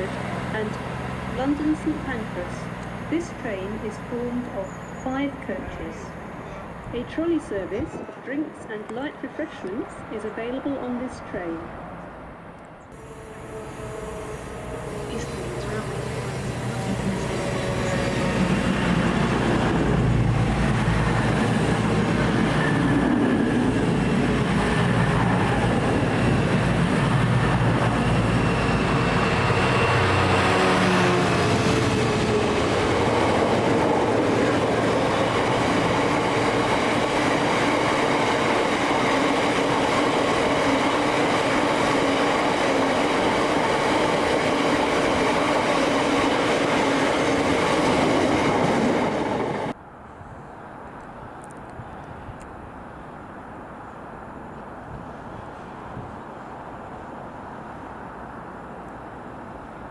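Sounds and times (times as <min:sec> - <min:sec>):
train wheels rumbling on track: 0:00.0 - 0:08.2, 0:13.0 - 0:49.8
diesel train engine: 0:00.0 - 0:49.9.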